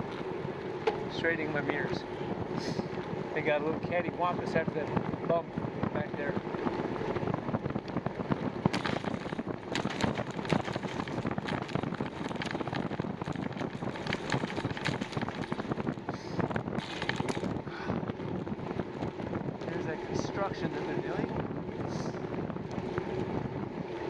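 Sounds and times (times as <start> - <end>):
wind buffeting microphone: 0.0 - 24.0
short clicks and rattles: 16.7 - 17.6.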